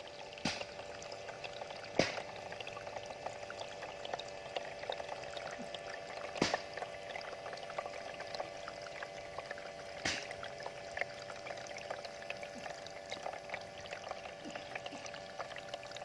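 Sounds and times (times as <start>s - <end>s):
water fountain splashing: 0.0s - 16.0s
sharp tap: 10.1s - 10.3s.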